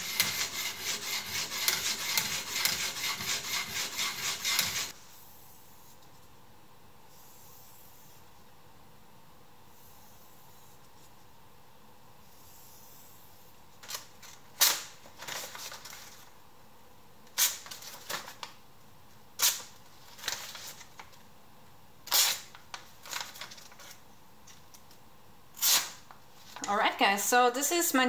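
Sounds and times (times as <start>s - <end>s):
knife blade scraping: 0.0s - 4.9s.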